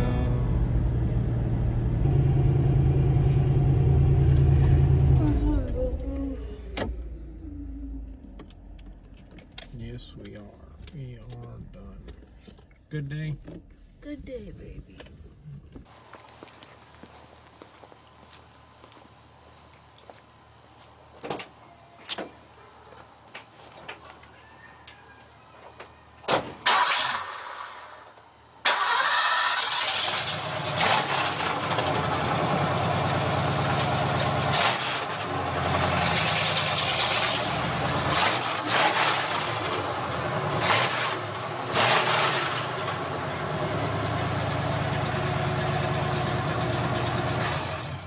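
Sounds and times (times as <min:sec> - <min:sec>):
engine throttle blips: 0:00.0 - 0:15.8
car engine cranking and starting: 0:00.0 - 0:15.9, 0:26.6 - 0:48.0.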